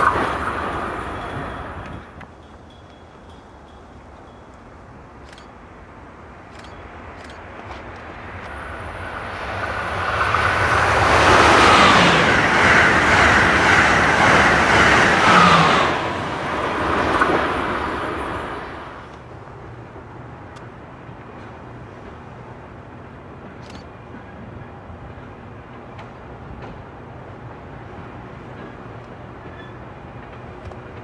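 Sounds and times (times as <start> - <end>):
train rushing past: 0.0 - 31.0.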